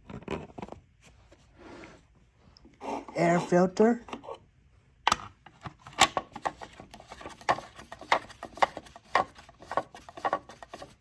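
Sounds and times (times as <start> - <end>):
clicks and taps on plastic cover: 5.1 - 10.9.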